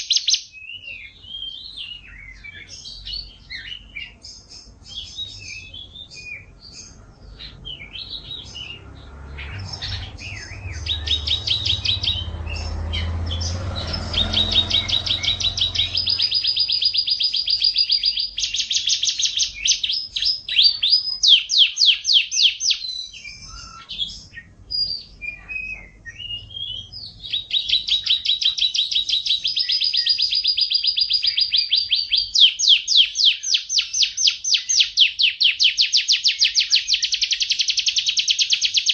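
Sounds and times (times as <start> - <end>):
canary singing trills: 0.0 - 38.9
low rumble: 7.0 - 17.0.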